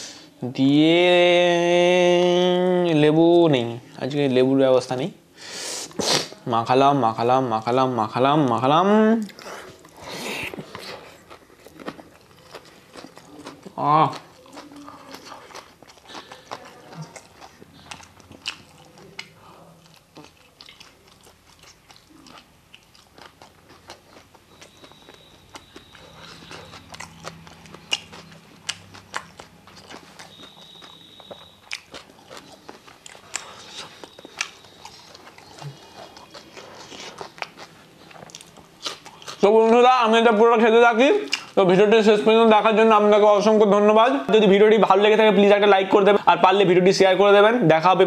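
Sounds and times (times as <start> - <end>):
man chewing food: 9.2 - 39.8, 41.2 - 41.6.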